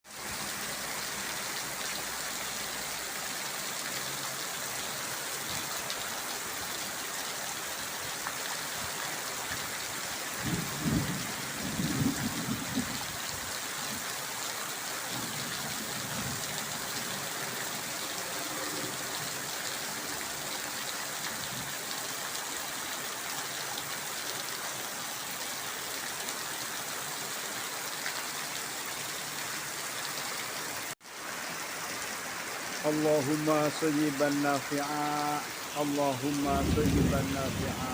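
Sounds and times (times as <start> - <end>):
heavy rain pouring: 0.1 - 37.9.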